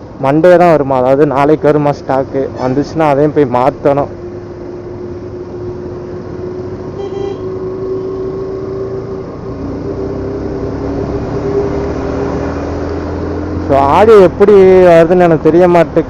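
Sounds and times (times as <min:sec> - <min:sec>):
road and wind rumble: 0:00.0 - 0:16.0
short horn beep: 0:07.0 - 0:07.5.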